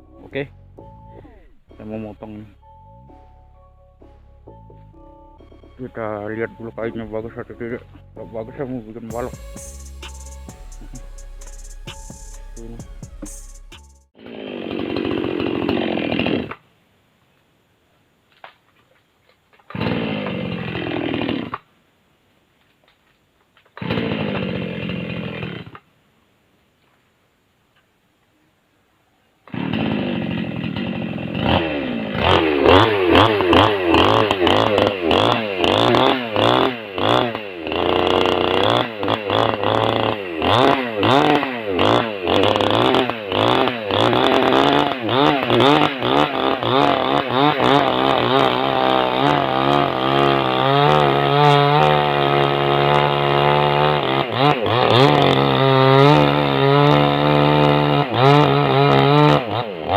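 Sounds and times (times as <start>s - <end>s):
chainsaw revving and sawing log: 6.0s - 16.6s, 19.7s - 21.7s, 23.8s - 25.8s, 29.5s - 59.9s.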